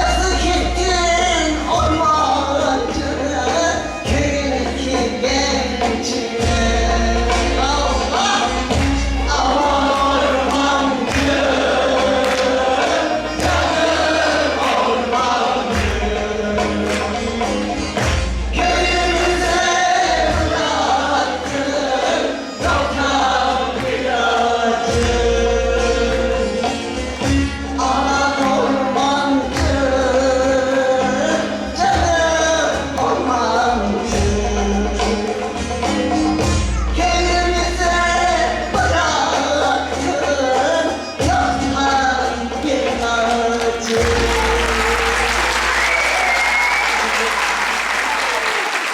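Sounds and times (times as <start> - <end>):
choir singing folk music: 0.0 - 48.9
instrumental accompaniment: 0.0 - 48.9
steady percussion beat: 0.0 - 48.9.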